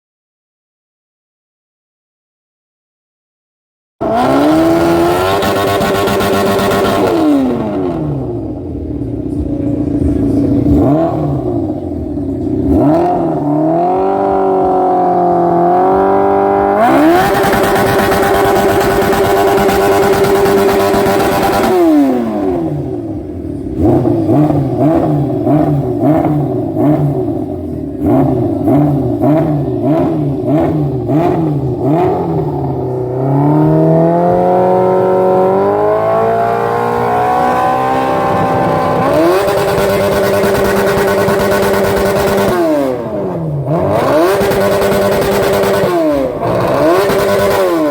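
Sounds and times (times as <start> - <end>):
loud engine revving: 4.0 - 8.6, 10.0 - 47.9.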